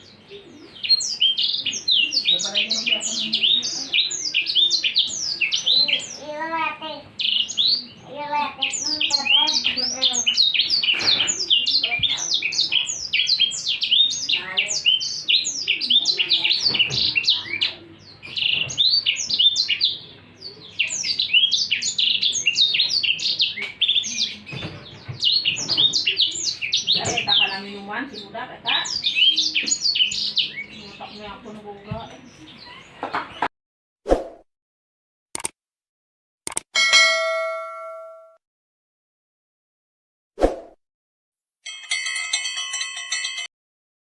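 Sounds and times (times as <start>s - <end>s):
songbird chirping and trilling: 0.0s - 33.5s.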